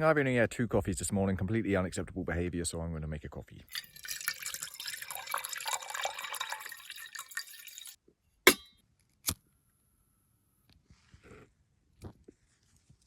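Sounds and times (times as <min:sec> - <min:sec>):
water pouring into a pot: 0:03.7 - 0:08.0.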